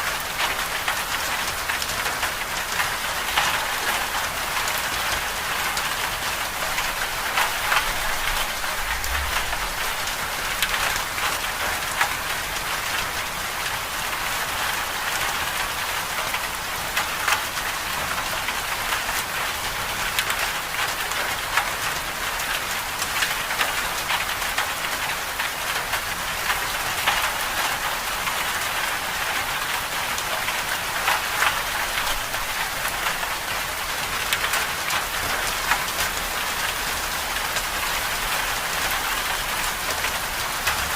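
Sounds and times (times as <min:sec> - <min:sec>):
hiss of falling precipitation: 0:00.0 - 0:40.9.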